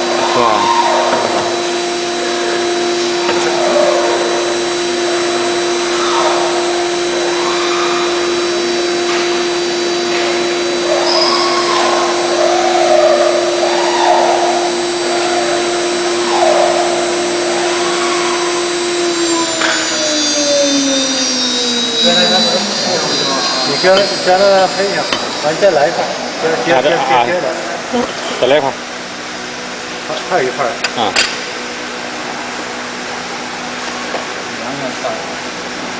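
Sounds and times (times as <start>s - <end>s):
router spindle whining: 0.0s - 28.6s
cutter machining metal: 0.0s - 28.8s.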